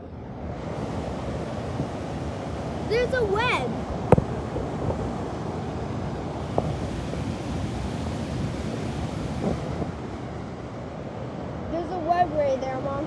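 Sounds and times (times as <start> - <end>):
waterfall rushing: 0.6 - 10.6.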